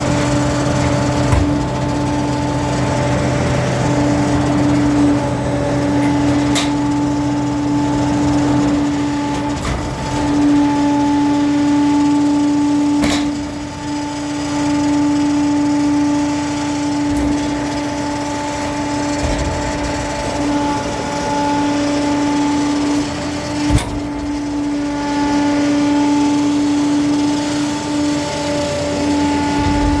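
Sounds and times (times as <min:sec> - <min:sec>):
metal knocks and clanks: 0:00.0 - 0:07.0, 0:16.7 - 0:25.8, 0:29.2 - 0:30.0
deeper hum: 0:00.0 - 0:27.4, 0:28.3 - 0:30.0
garbage truck engine hum: 0:00.0 - 0:30.0.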